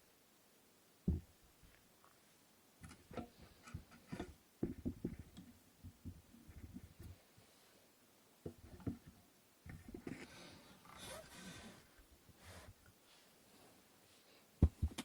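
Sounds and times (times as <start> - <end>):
wooden loom knocking and clicking: 2.8 - 7.0.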